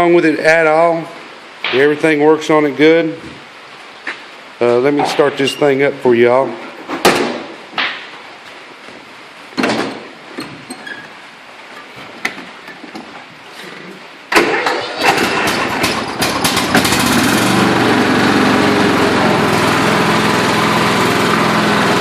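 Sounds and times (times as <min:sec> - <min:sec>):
lawn mower engine running: 0:14.3 - 0:22.0
starter cranking engine: 0:14.4 - 0:17.7.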